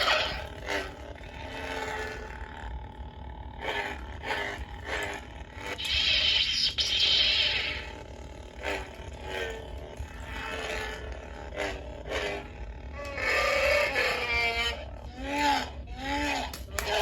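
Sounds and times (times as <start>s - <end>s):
lightsaber swing and clash bursts: 0.0s - 0.6s, 5.7s - 8.0s
toy lightsaber buzzing hum: 0.0s - 17.0s.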